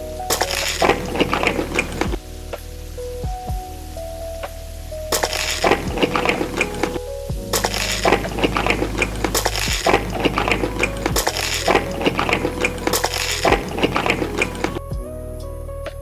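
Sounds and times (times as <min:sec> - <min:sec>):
soft background music: 0:00.0 - 0:16.0
chewing and crunching food: 0:00.4 - 0:02.2, 0:05.2 - 0:07.0, 0:07.6 - 0:14.8.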